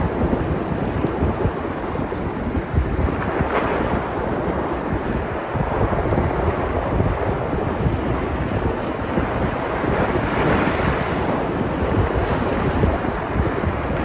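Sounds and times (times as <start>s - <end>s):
waves breaking ashore: 0.0s - 14.0s
wind buffeting microphone: 0.0s - 14.0s.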